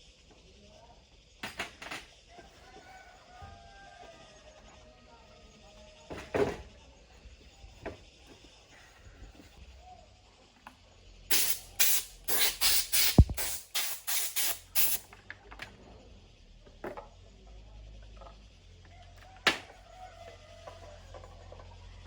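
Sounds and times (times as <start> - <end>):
short hissing spray bursts: 11.3 - 15.1.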